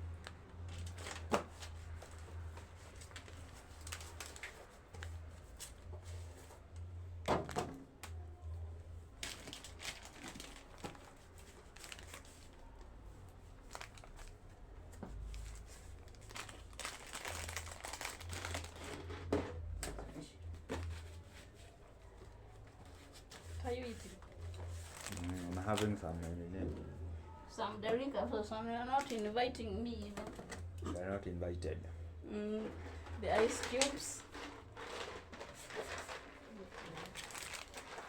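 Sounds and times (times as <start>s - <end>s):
plastic packaging crinkling: 0.6s - 5.2s, 9.2s - 12.8s, 13.6s - 14.5s, 15.2s - 19.3s, 24.3s - 26.4s, 29.0s - 29.4s, 32.8s - 38.0s.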